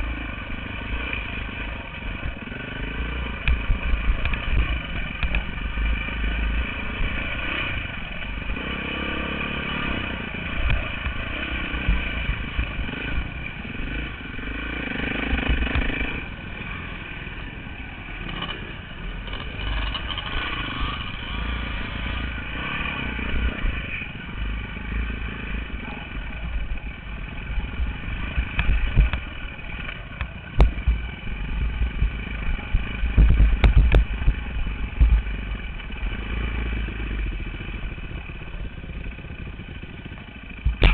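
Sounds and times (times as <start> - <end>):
dirt bike engine revving: 0.0 - 40.9
sharp knocks and clatter: 33.0 - 34.4, 40.6 - 40.9.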